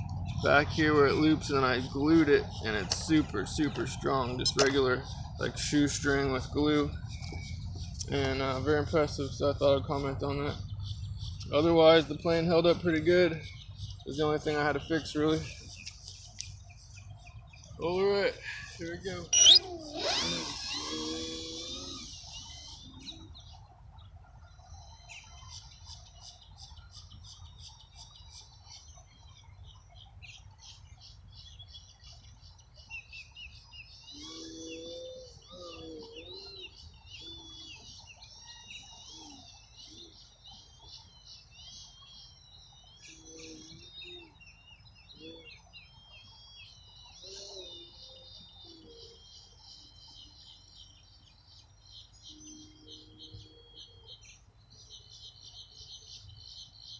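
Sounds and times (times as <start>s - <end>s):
lower bending bird calls: 0.0s - 56.9s
small birds chirping: 0.0s - 56.9s.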